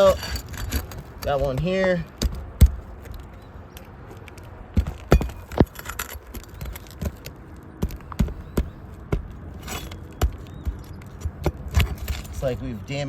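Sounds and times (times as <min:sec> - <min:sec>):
metal scraping: 0:00.0 - 0:02.0, 0:04.1 - 0:10.3, 0:11.2 - 0:12.6
sharp metal clicks and knocks: 0:00.0 - 0:12.5.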